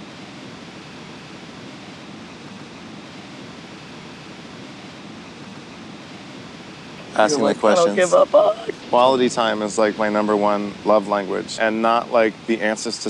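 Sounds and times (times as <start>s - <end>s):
wind: 0.0s - 13.0s
ocean surf: 7.0s - 9.3s.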